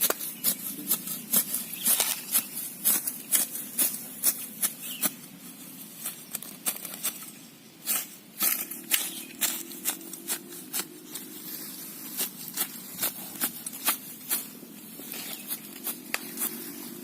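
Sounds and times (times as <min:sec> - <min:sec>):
footsteps walking: 0:07.9 - 0:17.0.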